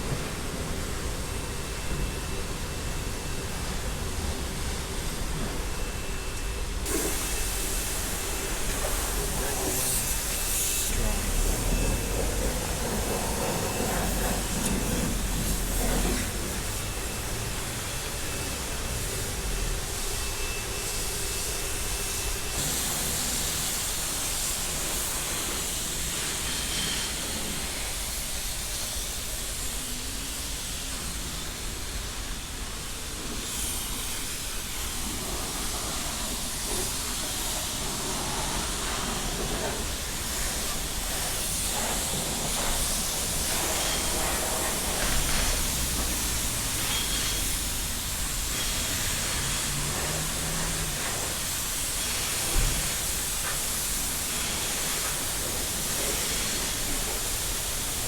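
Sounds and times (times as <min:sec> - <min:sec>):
high-pressure water spray hissing: 0:00.0 - 0:58.0.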